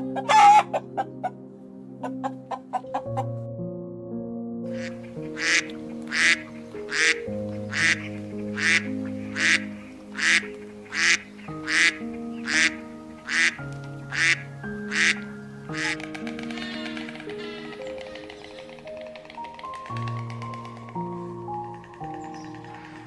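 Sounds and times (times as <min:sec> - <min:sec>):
soft background music: 0:00.0 - 0:23.0
duck quacking: 0:04.8 - 0:18.8.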